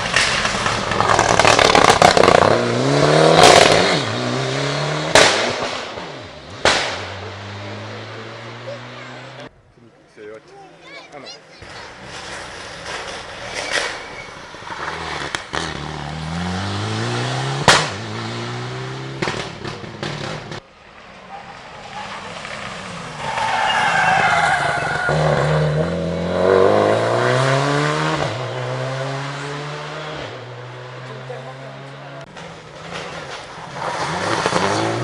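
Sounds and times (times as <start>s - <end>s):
rally cars passing at speed: 0.0s - 9.5s, 11.6s - 35.0s
tyres squealing: 23.2s - 25.3s.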